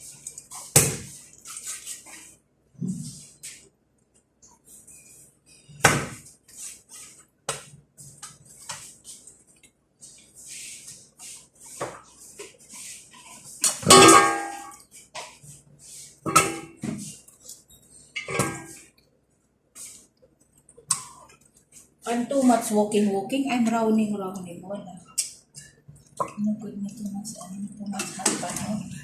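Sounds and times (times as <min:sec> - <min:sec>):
metal cookware clanking: 0:13.8 - 0:14.8, 0:16.3 - 0:16.8, 0:18.2 - 0:18.8.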